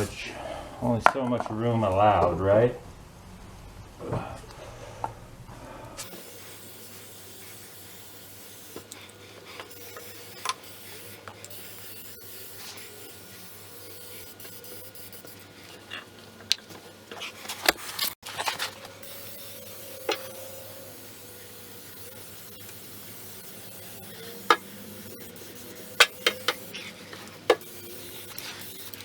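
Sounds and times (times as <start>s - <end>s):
rubbing and handling noises: 6.0s - 29.0s.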